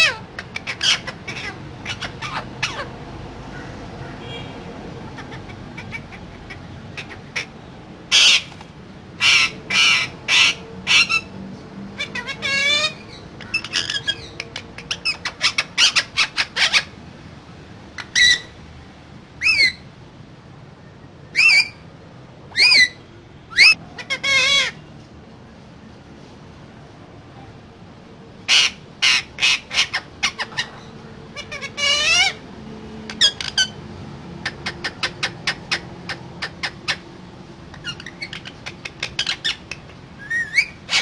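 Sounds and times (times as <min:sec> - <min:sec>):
parakeet squawking: 0:00.0 - 0:08.6, 0:09.2 - 0:11.3, 0:12.0 - 0:17.0, 0:18.0 - 0:18.5, 0:21.4 - 0:21.8, 0:22.5 - 0:24.8, 0:28.5 - 0:32.4, 0:33.1 - 0:33.8, 0:34.4 - 0:37.1, 0:37.7 - 0:41.0.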